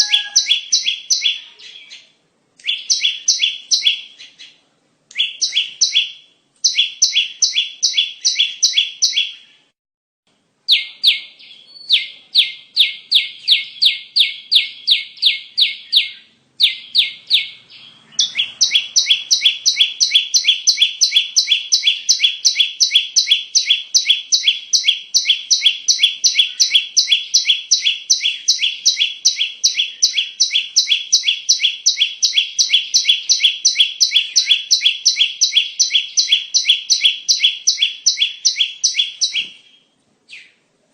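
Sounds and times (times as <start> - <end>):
prinia call harsh chips: 0.0 - 1.8.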